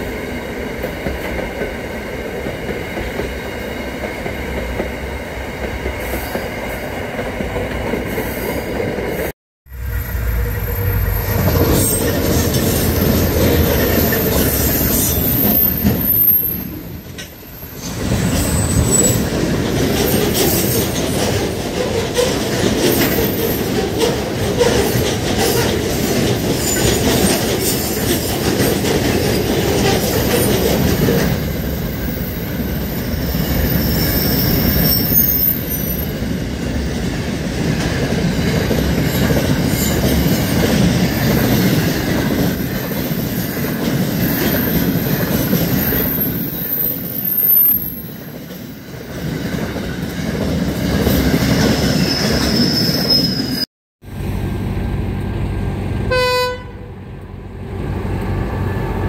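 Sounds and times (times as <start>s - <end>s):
train wheels rumbling and clattering: 0.0s - 56.1s
high-pitched wheel squeal: 9.8s - 16.8s, 17.4s - 19.3s, 31.7s - 36.2s, 44.5s - 48.2s, 51.9s - 53.7s.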